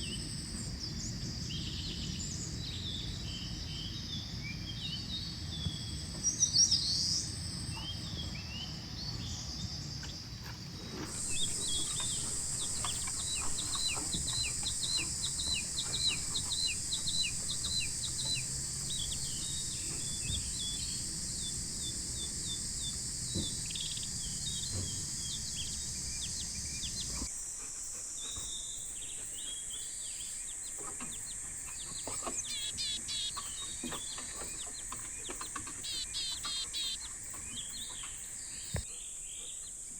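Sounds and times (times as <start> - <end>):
small birds chirping: 0.0 - 39.9
high-pitched insect drone: 11.0 - 38.9.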